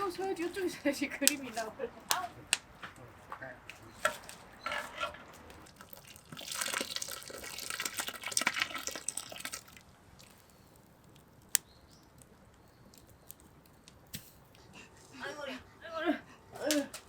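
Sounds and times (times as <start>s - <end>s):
liquid pouring and splashing: 5.7s - 10.8s.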